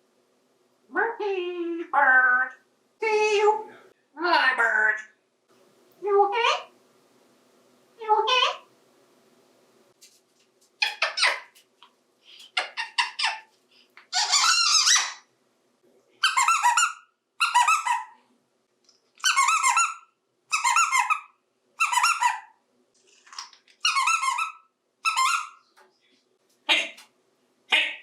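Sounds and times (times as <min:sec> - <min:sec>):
parrot squeaky calls: 0:10.8 - 0:11.6, 0:12.6 - 0:13.5, 0:14.1 - 0:15.3, 0:16.2 - 0:18.2, 0:19.2 - 0:22.6, 0:23.8 - 0:25.7.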